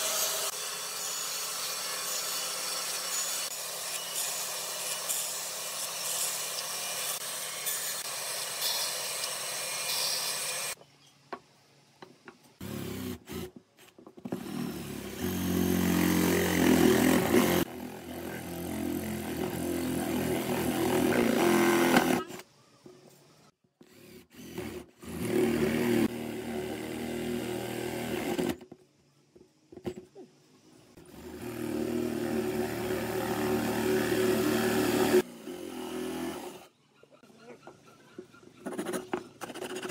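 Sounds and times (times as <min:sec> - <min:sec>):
band saw cutting wood: 0:00.0 - 0:10.8, 0:14.3 - 0:22.4, 0:23.9 - 0:28.6, 0:31.0 - 0:36.7
electric drill boring into wood: 0:14.3 - 0:22.4, 0:23.9 - 0:28.6, 0:31.1 - 0:36.7.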